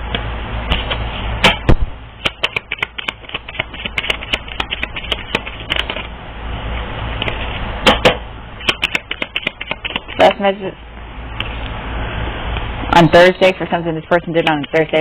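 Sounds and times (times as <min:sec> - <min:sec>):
steady low hum: 0:00.0 - 0:15.0
cards shuffling: 0:02.2 - 0:06.1, 0:08.6 - 0:10.3.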